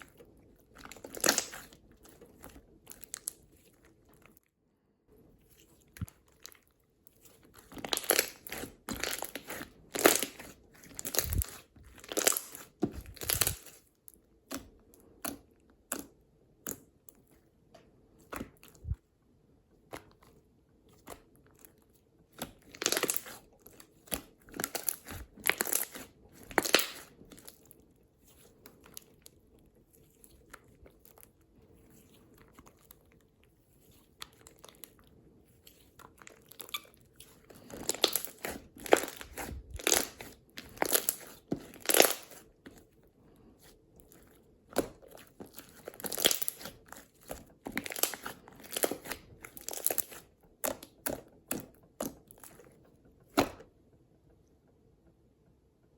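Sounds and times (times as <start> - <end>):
slime crackling and popping: 0.6 - 3.7, 7.2 - 16.9, 22.4 - 27.8, 34.1 - 42.8, 44.0 - 52.6.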